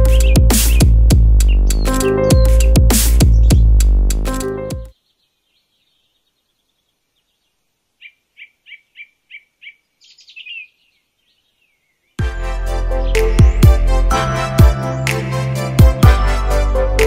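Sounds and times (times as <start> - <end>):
bird chirps and trills: 0.0 - 3.9, 4.9 - 12.2
background music: 0.0 - 4.9, 12.2 - 17.0.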